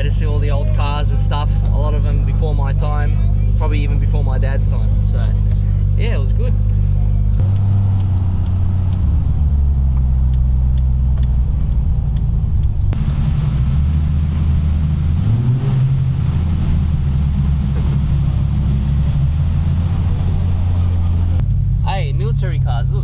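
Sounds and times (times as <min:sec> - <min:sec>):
loud engine drone: 0:00.0 - 0:23.0.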